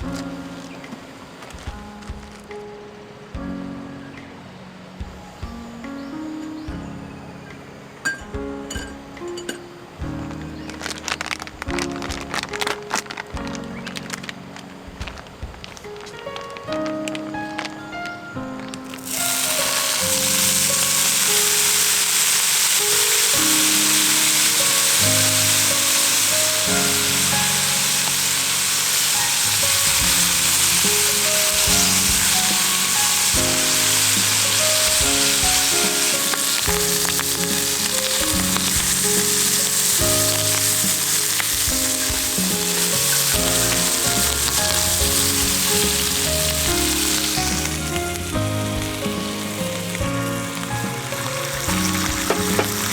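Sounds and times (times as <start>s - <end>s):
background music: 0.0s - 52.9s
food sizzling in a pan: 18.9s - 52.9s.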